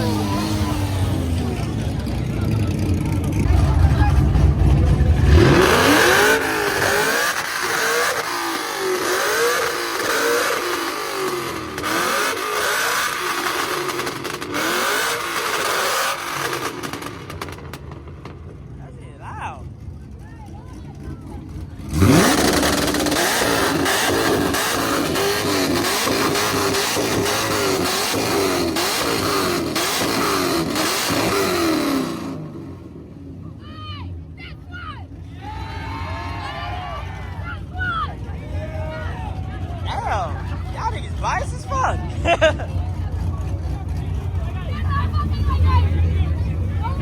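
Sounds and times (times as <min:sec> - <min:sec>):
car engine revving in blips: 0:00.0 - 0:18.6, 0:21.5 - 0:33.3
exhaust cracks: 0:00.0 - 0:18.8, 0:20.8 - 0:33.2.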